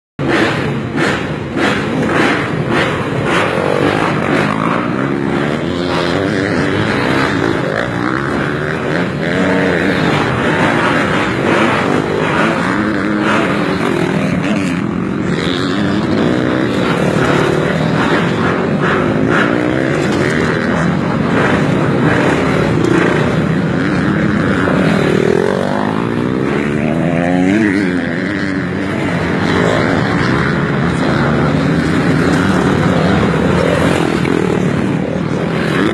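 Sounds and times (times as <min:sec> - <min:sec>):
motocross bike engines revving: 0:00.2 - 0:35.9.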